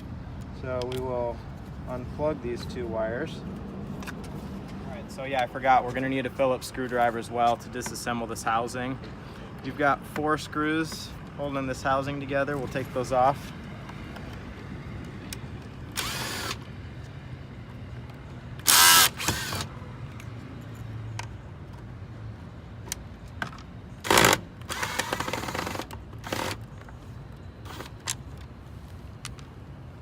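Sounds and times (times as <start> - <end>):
power screwdriver whirring: 15.9 - 16.6, 18.6 - 19.7, 24.0 - 26.6, 27.7 - 28.2.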